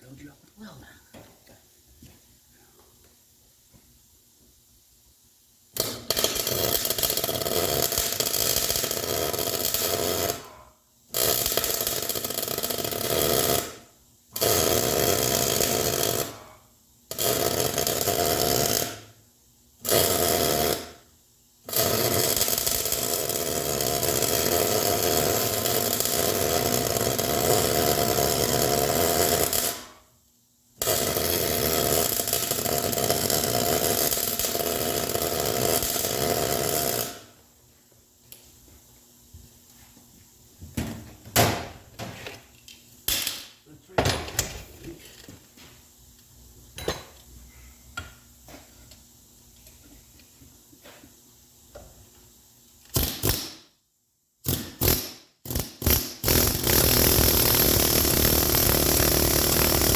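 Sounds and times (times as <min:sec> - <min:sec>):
angle grinder bursts: 0:54.5 - 0:59.9.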